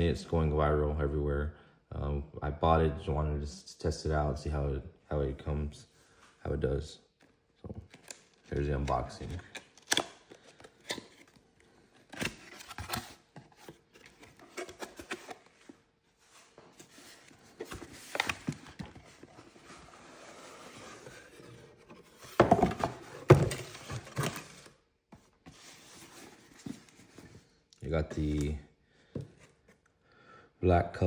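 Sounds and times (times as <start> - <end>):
packaging rustling: 7.8 - 24.8
box thumps: 22.2 - 24.5.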